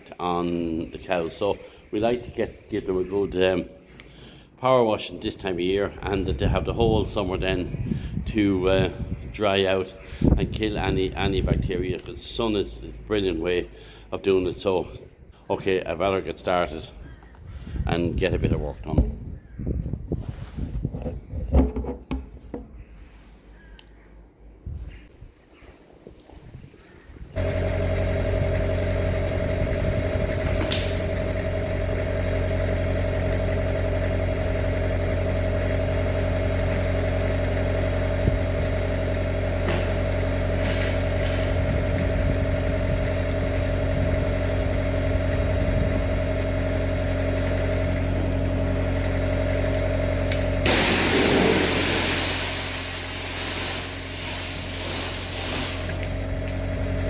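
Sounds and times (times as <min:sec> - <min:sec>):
power washer motor humming: 0:27.4 - 0:57.0
high-pressure water jet hissing: 0:50.6 - 0:56.0.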